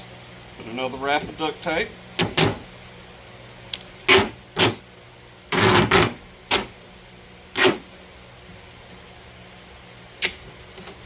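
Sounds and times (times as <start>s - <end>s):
duct tape ripping off roll: 4.1s - 4.8s, 5.5s - 6.7s, 7.5s - 7.9s.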